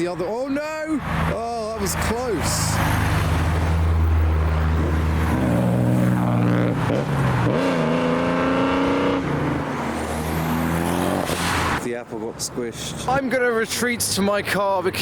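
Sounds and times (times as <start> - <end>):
car engine pulling away: 2.6 - 11.8.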